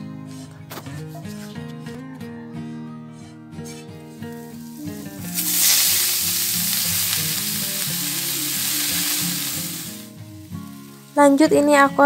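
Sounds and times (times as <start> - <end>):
vegetables sizzling in pan: 4.3 - 12.0.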